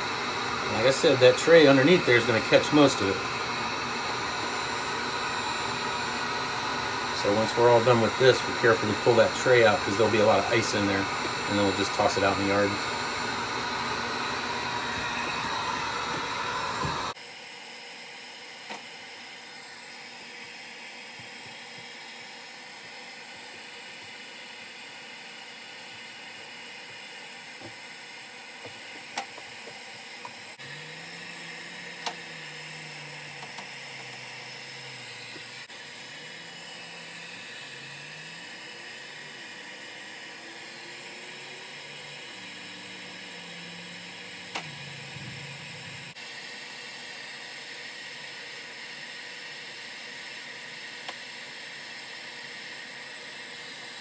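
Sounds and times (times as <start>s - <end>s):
heat gun blowing: 0.0s - 17.2s, 28.4s - 47.8s.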